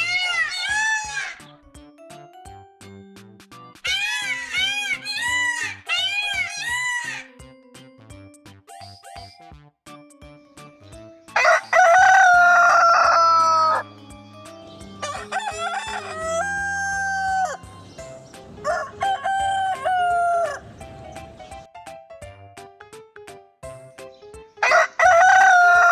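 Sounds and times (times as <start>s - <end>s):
background music with ticking beat: 0.0s - 25.9s
rooster crowing: 11.4s - 13.9s, 15.0s - 17.7s, 18.6s - 20.7s, 24.6s - 25.9s.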